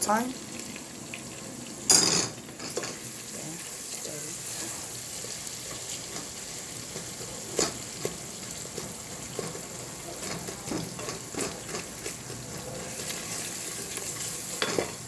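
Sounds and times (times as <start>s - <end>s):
onions sizzling in oil: 0.0s - 15.0s
spoon stirring in pan: 2.4s - 15.0s.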